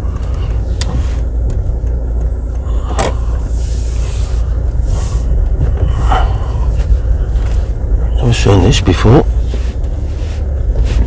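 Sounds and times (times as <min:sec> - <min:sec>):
car driving rumble inside cabin: 0:00.0 - 0:11.0.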